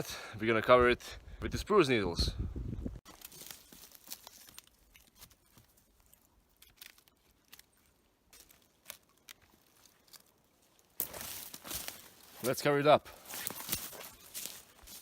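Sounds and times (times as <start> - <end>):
dry branches crackling and rustling: 3.0 - 15.0.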